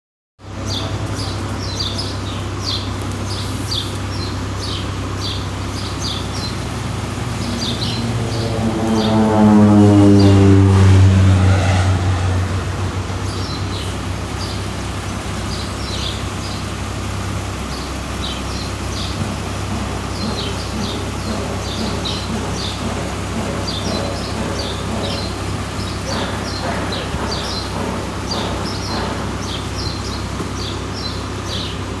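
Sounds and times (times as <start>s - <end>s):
birds chirping: 0.7s - 16.8s, 17.8s - 31.9s
steady low hum: 2.3s - 15.8s
passing vehicle engine: 3.1s - 17.2s, 19.3s - 30.4s.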